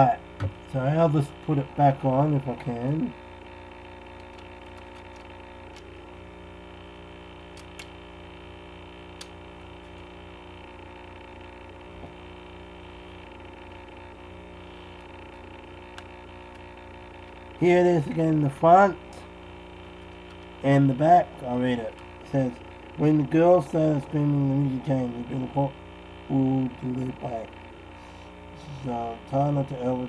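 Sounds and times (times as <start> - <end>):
electrical mains hum: 0.0 - 30.0.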